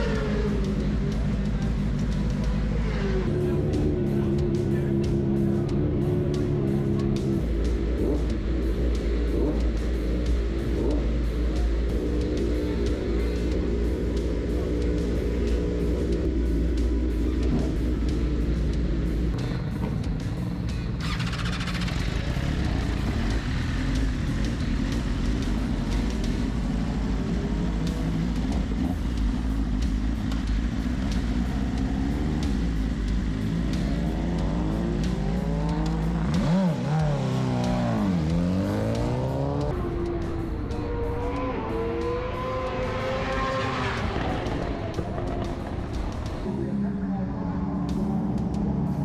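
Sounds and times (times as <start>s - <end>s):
motorbike passing close: 0.0s - 29.3s, 30.2s - 49.0s
distant engine drone: 0.0s - 49.0s
engine revs climbing and dropping: 27.5s - 46.5s.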